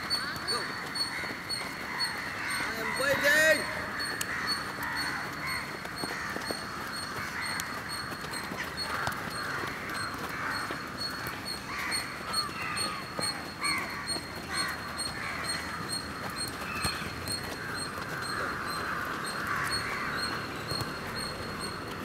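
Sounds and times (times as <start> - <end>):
birds calling in chorus: 0.0 - 22.0.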